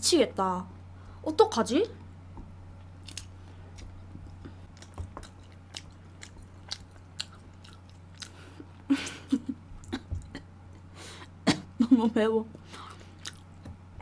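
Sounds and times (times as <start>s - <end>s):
steady low hum: 0.0s - 14.0s
chewing and lip-smacking: 2.8s - 8.9s, 12.6s - 13.8s.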